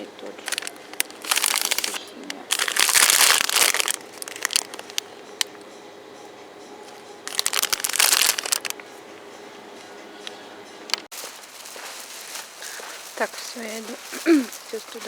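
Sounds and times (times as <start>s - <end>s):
plastic packaging crinkling: 0.4s - 5.1s, 7.3s - 8.7s, 11.1s - 15.0s.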